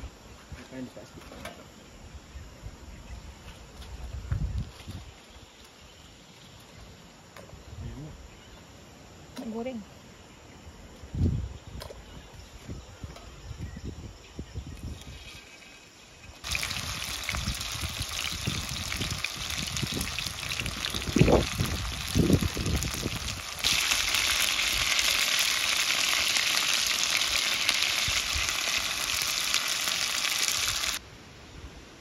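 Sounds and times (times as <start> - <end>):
food sizzling in hot oil: 14.9 - 31.0.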